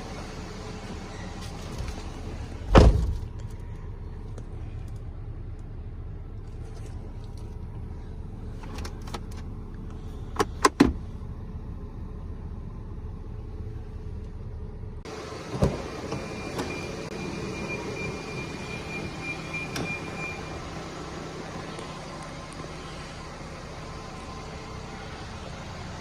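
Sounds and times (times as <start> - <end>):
car engine idling: 0.0 - 26.0
thump: 2.7 - 3.2.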